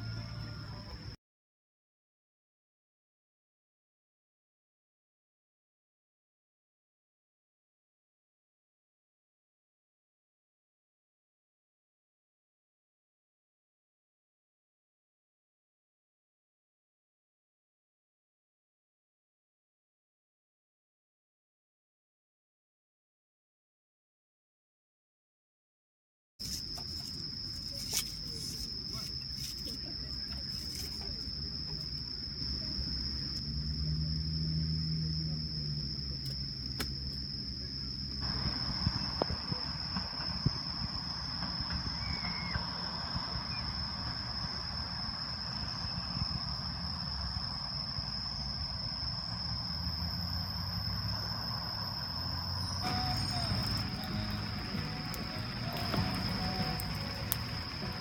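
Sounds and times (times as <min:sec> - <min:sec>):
crickets chirping: 0:00.0 - 0:01.2, 0:26.4 - 0:58.0
low background rumble: 0:52.8 - 0:58.0.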